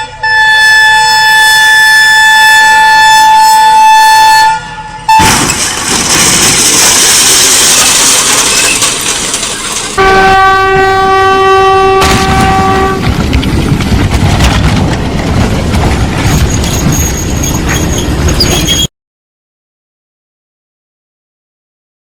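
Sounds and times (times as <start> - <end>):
train horn blast: 0.0 - 5.2, 10.0 - 13.1
train rumbling and rattling past: 9.2 - 18.9.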